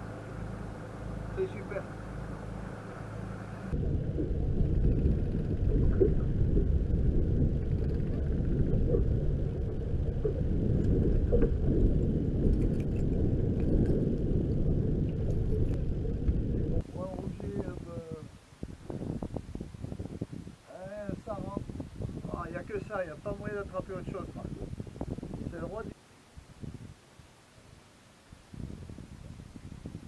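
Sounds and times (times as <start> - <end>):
boat engine and hull rumble: 0.0 - 18.2, 19.0 - 25.9.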